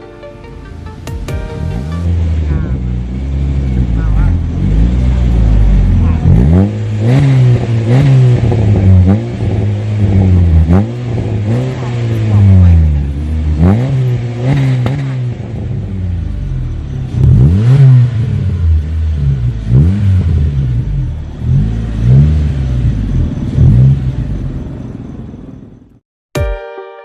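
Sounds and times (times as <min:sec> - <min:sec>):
electronic music: 0:00.0 - 0:03.2, 0:26.4 - 0:27.0
engine revving over idle: 0:01.8 - 0:25.9.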